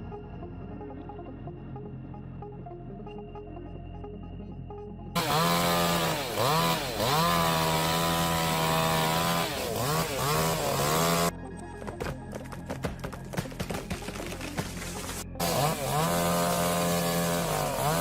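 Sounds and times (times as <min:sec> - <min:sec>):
chainsaw revving: 0:05.2 - 0:11.3, 0:14.4 - 0:18.0.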